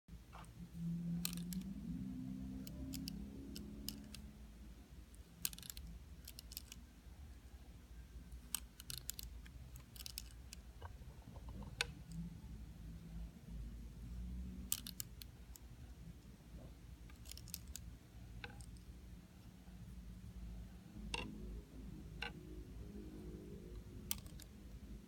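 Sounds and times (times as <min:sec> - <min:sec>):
low hum: 0:00.1 - 0:05.2, 0:18.1 - 0:25.0.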